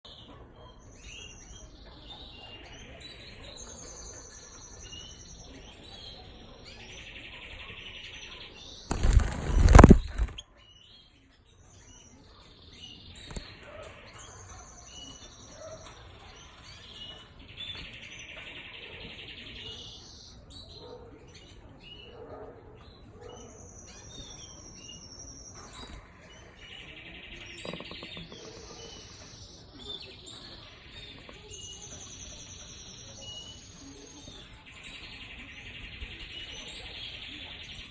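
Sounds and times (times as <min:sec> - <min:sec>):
canaries singing: 0:00.1 - 0:37.9
loud rustling: 0:08.9 - 0:10.4.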